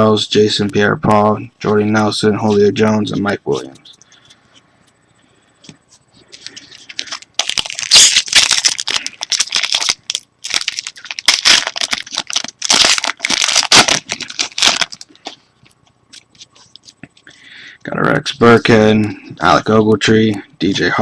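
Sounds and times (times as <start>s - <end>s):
foil wrapper tearing and crinkling: 6.9s - 15.4s.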